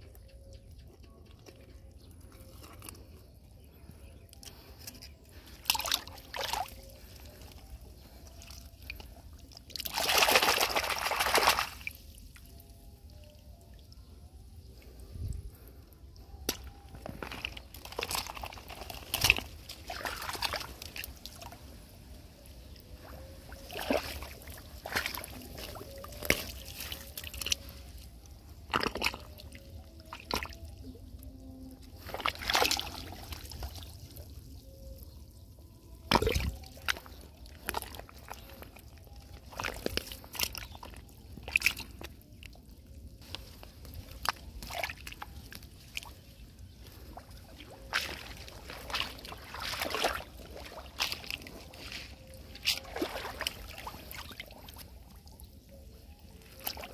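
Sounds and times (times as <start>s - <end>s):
hands splashing in muddy water: 4.8s - 12.6s, 16.2s - 21.6s, 22.9s - 30.7s, 32.0s - 34.8s, 36.0s - 42.5s, 43.2s - 55.7s, 56.4s - 56.9s.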